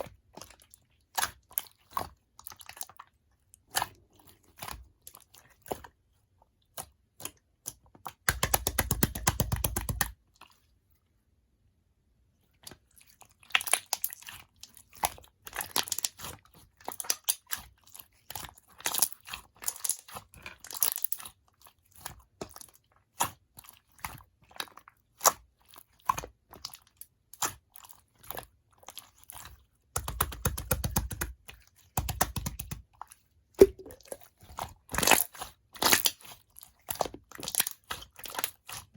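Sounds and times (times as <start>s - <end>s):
slime squishing with wet clicks: 0.0s - 38.9s.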